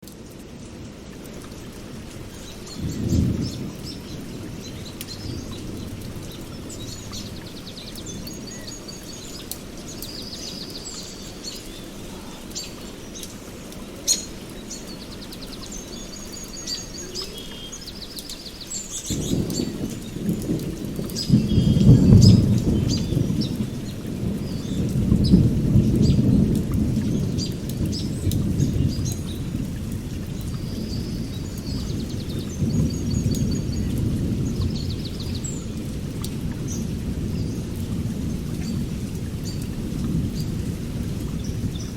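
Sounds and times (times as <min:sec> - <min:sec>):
steady rain: 0:00.0 - 0:41.9
songbirds chirping and trilling: 0:00.6 - 0:41.9
thunder rumbling: 0:01.8 - 0:08.7, 0:19.0 - 0:41.9.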